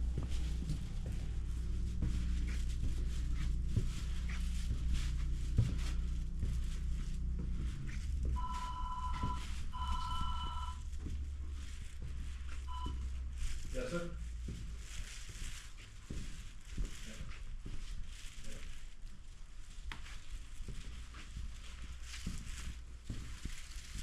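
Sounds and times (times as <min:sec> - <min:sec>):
low hum: 0:00.0 - 0:15.8
footsteps: 0:00.0 - 0:24.0
electronic phone ringing: 0:08.4 - 0:10.8.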